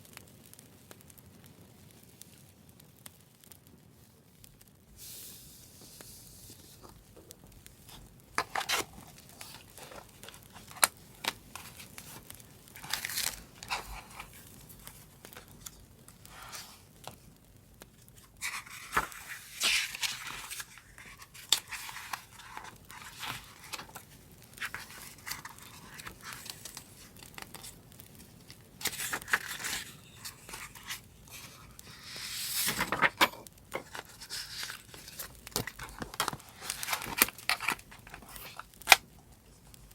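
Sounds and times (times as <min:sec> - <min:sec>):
paper crinkling and rustling: 0:05.0 - 0:39.9
paper tearing: 0:28.8 - 0:33.2.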